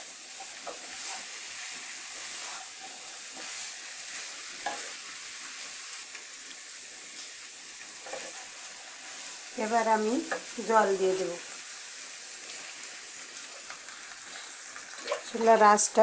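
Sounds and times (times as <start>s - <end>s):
food sizzling in a pan: 0.0s - 16.0s
wooden spatula scraping a pan: 0.3s - 6.1s, 7.1s - 9.4s.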